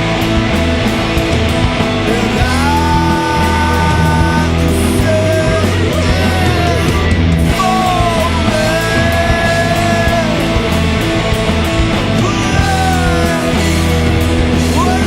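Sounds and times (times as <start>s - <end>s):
bass: 0.0s - 15.0s
distorted guitars: 0.0s - 15.0s
drums: 0.0s - 15.0s.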